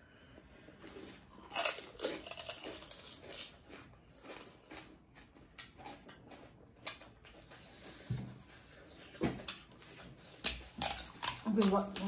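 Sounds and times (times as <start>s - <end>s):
crisp shells crunching when chewed: 0.7s - 7.6s, 9.4s - 12.0s.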